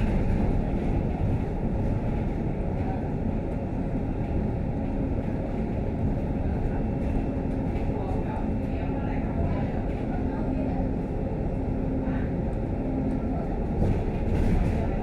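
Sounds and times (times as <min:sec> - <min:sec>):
bus rumble from inside: 0:00.0 - 0:15.0.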